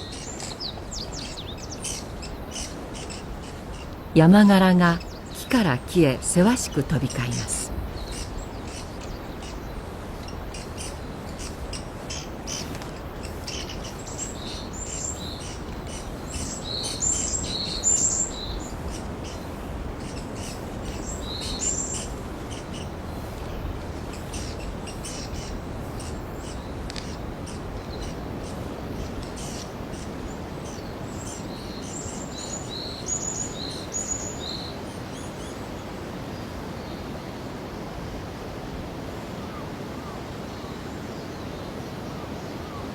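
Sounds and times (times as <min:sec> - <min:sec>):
forest background hiss: 0:00.0 - 0:42.9.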